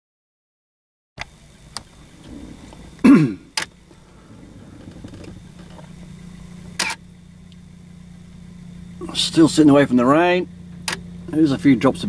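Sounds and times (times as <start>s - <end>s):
car engine idling: 1.2s - 12.0s
person grunting: 2.3s - 3.5s
sharp click: 6.8s - 7.0s, 10.8s - 11.1s.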